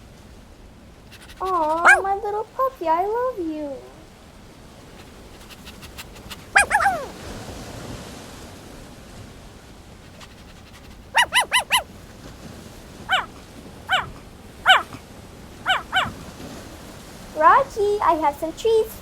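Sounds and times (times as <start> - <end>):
puppy yipping: 1.1 - 2.3, 5.0 - 7.2, 10.1 - 11.9, 13.1 - 15.0, 15.7 - 16.2.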